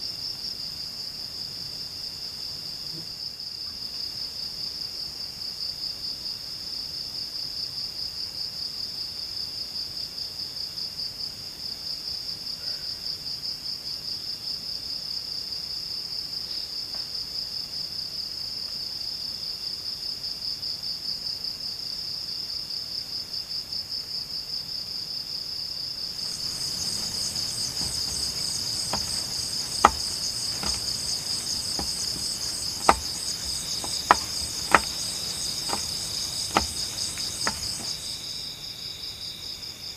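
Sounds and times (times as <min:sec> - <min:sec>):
sharp clicks or knocks: 0:26.2 - 0:38.0
higher insect trill: 0:26.2 - 0:38.4
insects trilling: 0:26.2 - 0:39.2.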